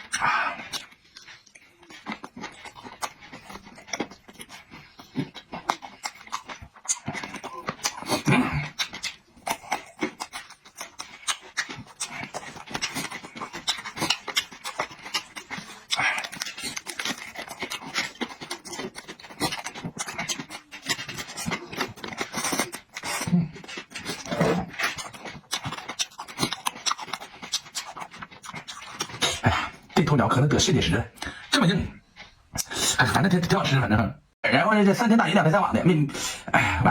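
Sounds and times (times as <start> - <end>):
person chewing food: 0.0 - 33.3
breathing: 31.2 - 31.5, 36.1 - 36.5.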